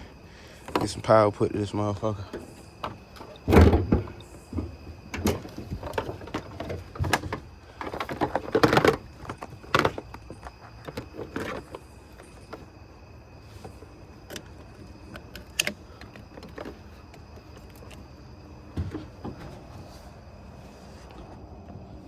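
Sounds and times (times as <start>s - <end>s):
clunks and knocks around car: 2.3s - 12.7s, 13.6s - 19.9s.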